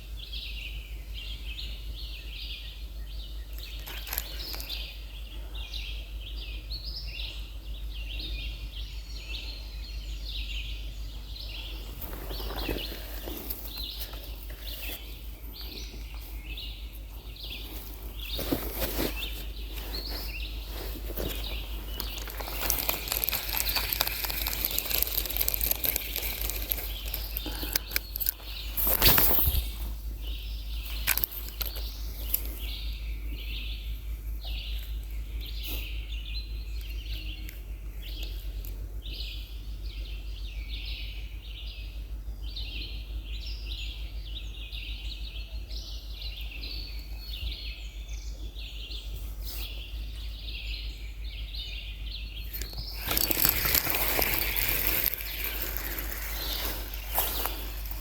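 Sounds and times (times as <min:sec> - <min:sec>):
low hum with crackling: 0:00.0 - 0:58.0.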